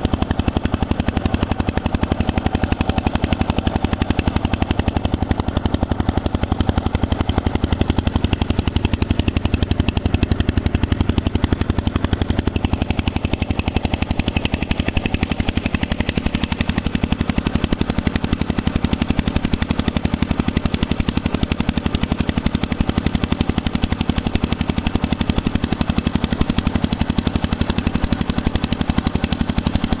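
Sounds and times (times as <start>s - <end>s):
boat engine running: 0.0s - 30.0s.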